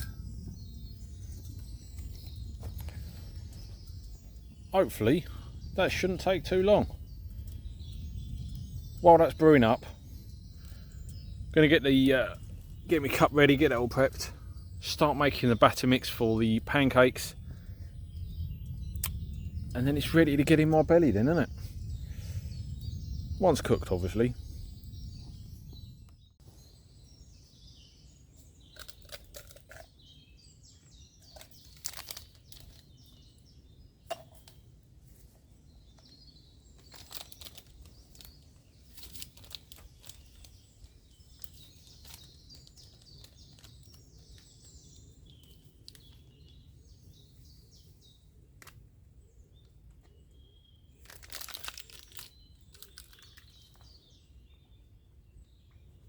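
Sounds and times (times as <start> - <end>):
small birds chirping: 0.0 - 56.0
packets and cooking gear crinkling: 28.6 - 30.2, 31.2 - 33.3, 35.9 - 46.5, 50.9 - 54.1.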